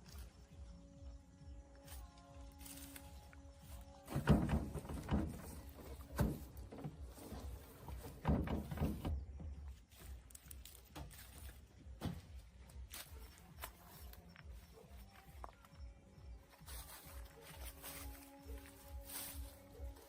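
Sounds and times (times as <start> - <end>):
knocks and thuds: 4.0 - 9.8, 12.0 - 12.4.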